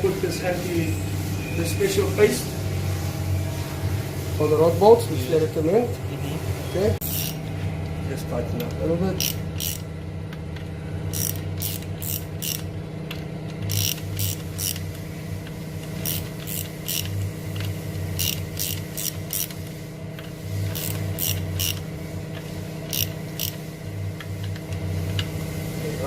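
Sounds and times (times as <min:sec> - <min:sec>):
steady low hum: 0:00.0 - 0:26.0
ratchet wrench clicking: 0:07.0 - 0:07.4, 0:08.6 - 0:09.9, 0:11.1 - 0:25.3.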